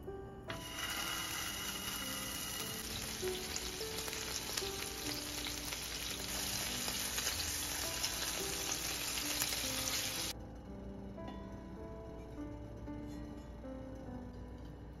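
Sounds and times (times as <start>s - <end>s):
patties sizzling in a frying pan: 0.6s - 10.3s.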